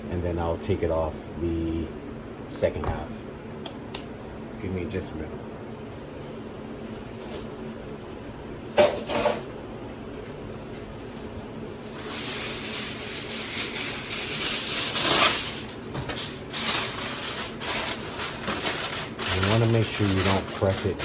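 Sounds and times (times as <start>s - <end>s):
aluminium foil crinkling: 11.8s - 21.0s.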